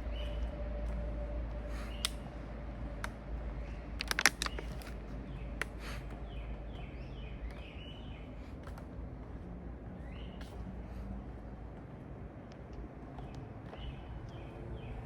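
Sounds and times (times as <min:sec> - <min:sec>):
bird singing: 0:00.0 - 0:00.6, 0:06.2 - 0:08.4
sharp clicks: 0:04.0 - 0:05.0.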